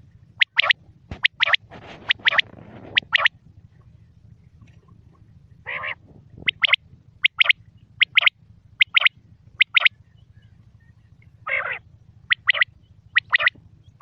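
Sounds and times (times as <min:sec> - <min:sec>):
quail growling note: 0:05.6 - 0:06.7, 0:11.5 - 0:11.8
quail three-note call: 0:05.7 - 0:09.9, 0:11.5 - 0:13.6.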